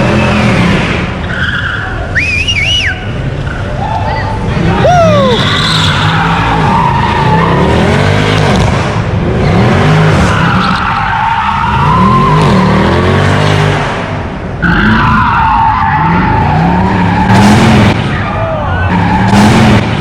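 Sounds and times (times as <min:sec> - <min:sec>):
tires squealing: 0:00.0 - 0:20.0
car engine revving: 0:04.3 - 0:18.3, 0:18.9 - 0:20.0.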